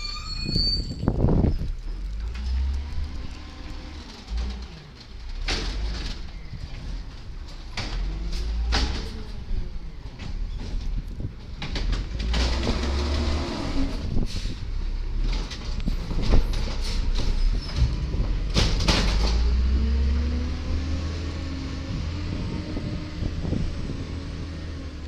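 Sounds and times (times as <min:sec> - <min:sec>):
garbage truck diesel engine revving: 0:12.0 - 0:25.0.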